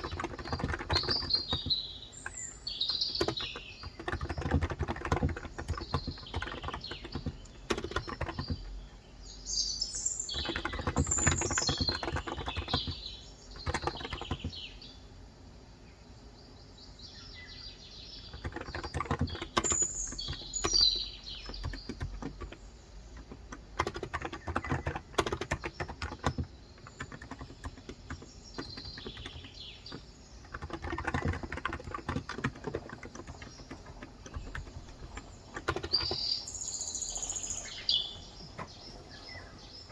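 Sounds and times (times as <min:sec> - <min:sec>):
soft keyboard keystrokes: 0:00.0 - 0:08.9, 0:10.3 - 0:14.6, 0:18.3 - 0:36.4
birds chirping: 0:00.0 - 0:39.9.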